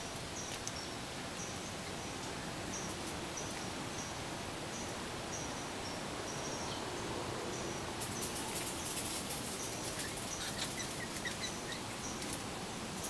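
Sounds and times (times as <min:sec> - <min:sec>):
small birds chirping: 0:07.5 - 0:12.4
leaves and twigs rustling: 0:08.0 - 0:13.0.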